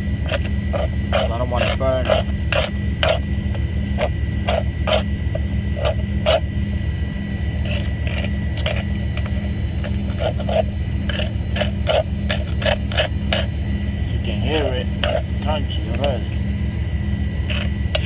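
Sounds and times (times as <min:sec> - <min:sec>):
steady low hum: 0:00.0 - 0:18.0
spoon scraping rice in pan: 0:00.3 - 0:03.2, 0:04.0 - 0:05.0, 0:07.6 - 0:13.5, 0:15.0 - 0:15.3.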